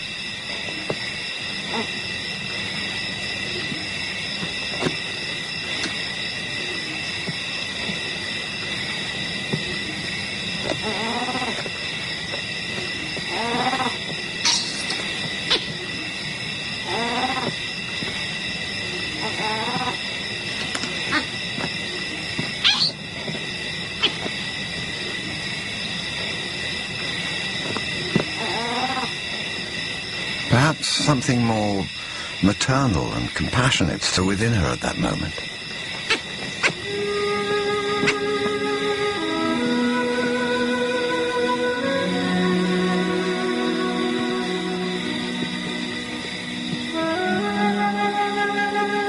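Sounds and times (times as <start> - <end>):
chorus of night insects: 0.0 - 49.0
faint animal calls: 1.6 - 2.0, 9.6 - 11.8, 12.8 - 16.1, 16.8 - 17.6, 18.9 - 23.0, 24.0 - 24.3, 28.0 - 29.2
sharp animal calls: 10.8 - 11.6, 13.3 - 15.8, 16.8 - 17.6, 19.2 - 20.0, 22.6 - 23.0, 28.4 - 29.2.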